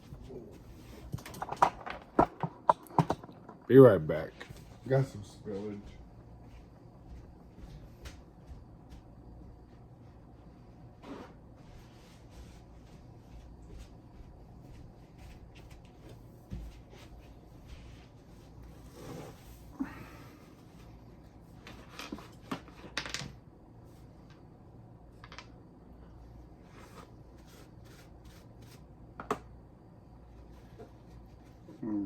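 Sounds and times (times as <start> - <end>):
low room hum: 0.0 - 32.0
knocks and clicks of handling: 1.1 - 3.7.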